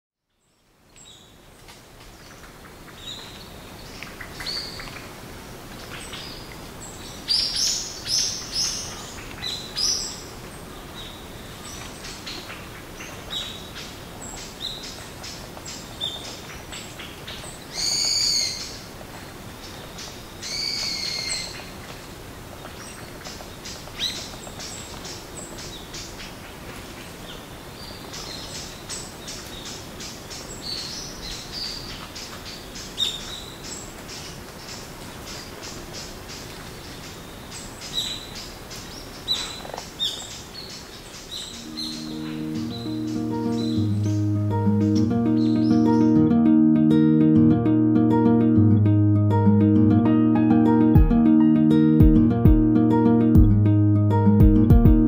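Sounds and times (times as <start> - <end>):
birds chirping: 22.6 - 46.2
harsh bird calls: 39.1 - 45.8.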